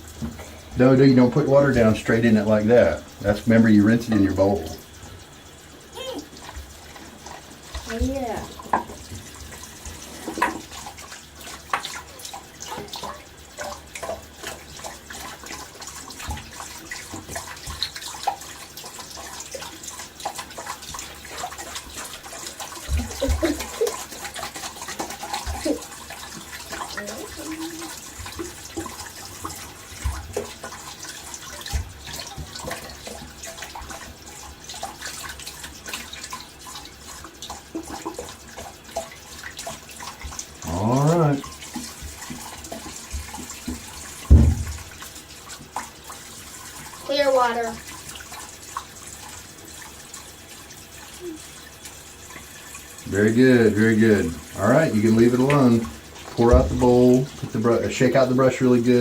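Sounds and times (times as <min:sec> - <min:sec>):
sink tap running: 0:00.0 - 0:59.0
water splashing: 0:00.0 - 0:59.0
knocks: 0:44.3 - 0:44.8.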